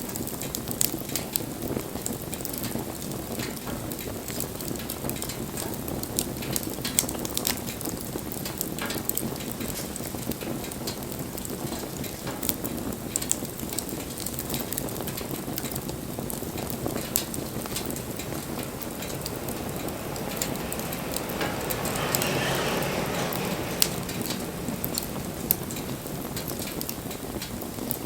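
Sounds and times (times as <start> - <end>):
campfire hissing: 0.0 - 28.0
fire crackles and pops: 0.0 - 28.0
hissing rush: 16.6 - 27.4.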